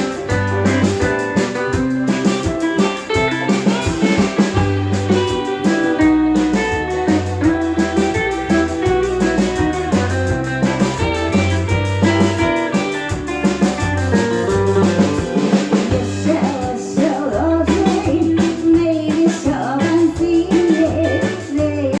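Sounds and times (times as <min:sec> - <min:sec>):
bass line: 0:00.0 - 0:22.0
drums: 0:00.0 - 0:22.0
guitar: 0:00.0 - 0:22.0
person singing: 0:15.2 - 0:22.0.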